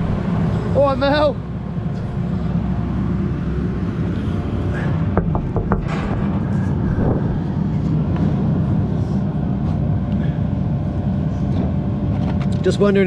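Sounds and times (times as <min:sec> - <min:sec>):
digger diesel engine running: 0:00.0 - 0:13.0
sharp metallic knocks: 0:05.1 - 0:07.2.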